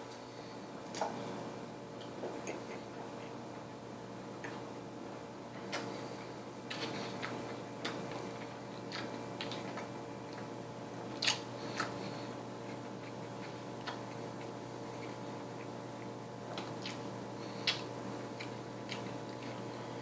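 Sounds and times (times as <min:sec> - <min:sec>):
person chewing food: 0:05.5 - 0:20.0.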